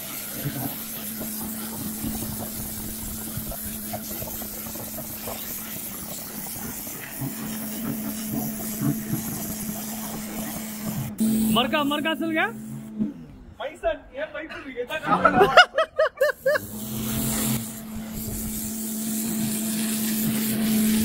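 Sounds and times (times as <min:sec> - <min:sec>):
water jet spraying on paving: 0:00.0 - 0:12.7, 0:16.2 - 0:21.0
pressure washer motor hum: 0:00.0 - 0:13.4, 0:16.2 - 0:21.0.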